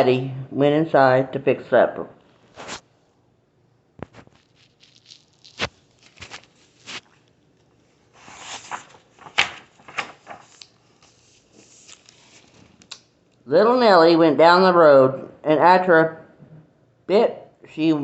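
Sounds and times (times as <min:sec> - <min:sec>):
paper rustling page turn: 0:02.5 - 0:02.8, 0:04.0 - 0:13.0.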